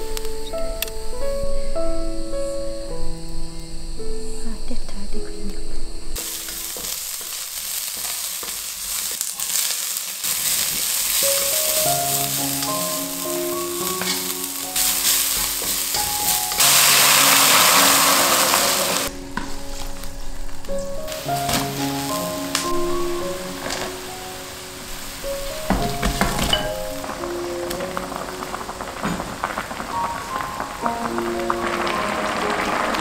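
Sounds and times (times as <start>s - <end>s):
frying hiss in a wok: 6.2s - 33.0s.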